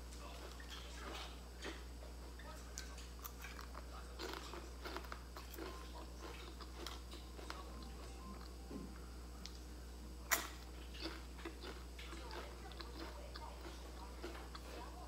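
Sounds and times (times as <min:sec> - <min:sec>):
crunchy snack chewing: 0:02.6 - 0:08.6, 0:10.2 - 0:15.0.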